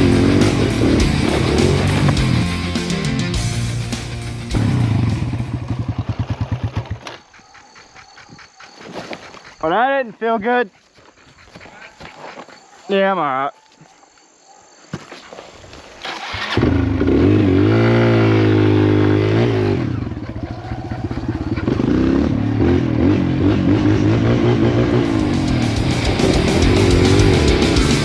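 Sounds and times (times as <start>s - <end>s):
dirt bike engine revving: 0.0s - 7.0s, 16.0s - 28.0s.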